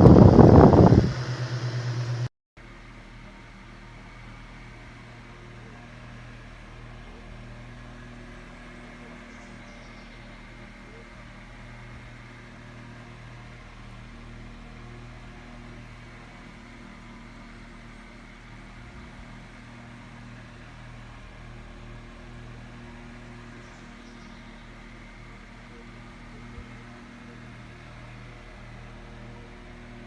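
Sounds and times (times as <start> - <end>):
table fan running: 0.0 - 2.3.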